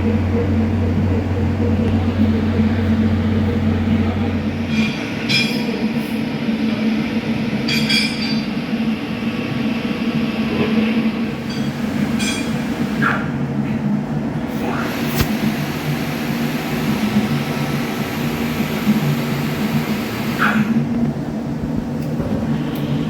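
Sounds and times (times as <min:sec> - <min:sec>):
welding arc buzzing: 0:14.6 - 0:20.9.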